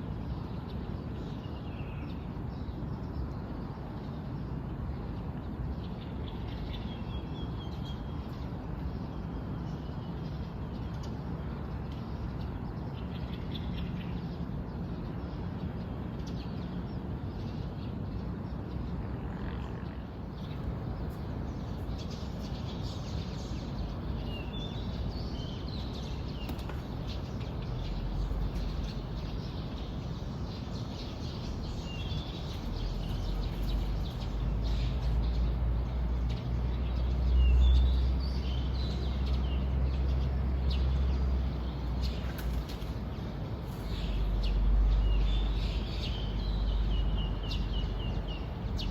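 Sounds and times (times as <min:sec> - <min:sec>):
birds chirping: 0:20.3 - 0:48.9.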